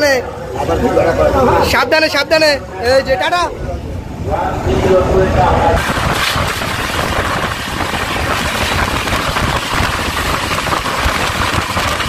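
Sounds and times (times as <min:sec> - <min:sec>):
vehicle engine rumble: 0:03.6 - 0:12.0
constant rushing hiss: 0:03.8 - 0:12.0.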